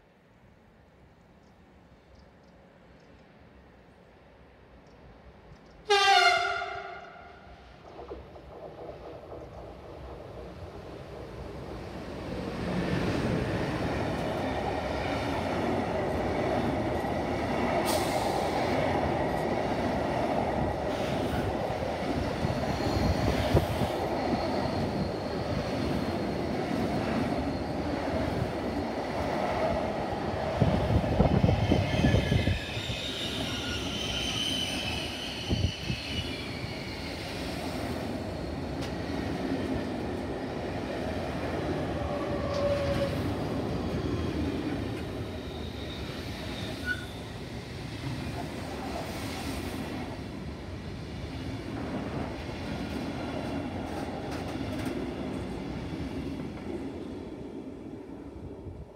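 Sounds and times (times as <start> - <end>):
rumble of train wheels on rail: 1.2 - 58.9
high wheel squeal: 22.4 - 28.0, 31.4 - 37.5, 45.2 - 47.4.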